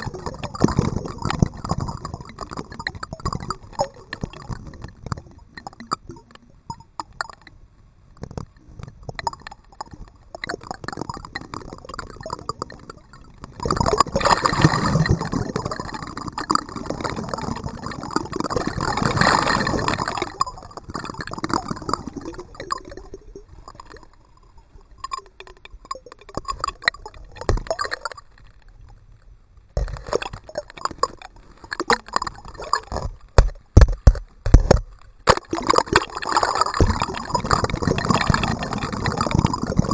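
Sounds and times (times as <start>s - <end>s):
water dripping and gurgling: 0.0s - 39.9s.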